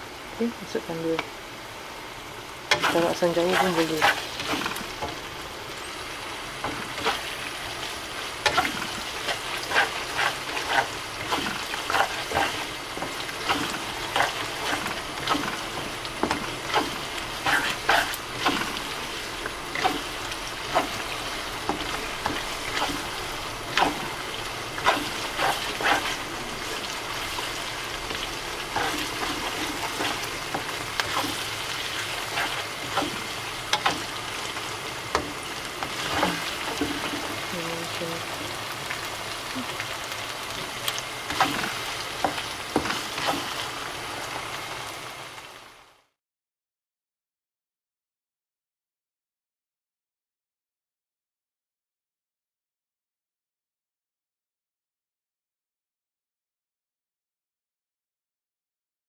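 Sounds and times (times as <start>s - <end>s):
chili paste sizzling in a wok: 0.0s - 46.2s
spatula scraping a pan: 2.7s - 5.3s, 6.6s - 37.5s, 41.2s - 43.8s.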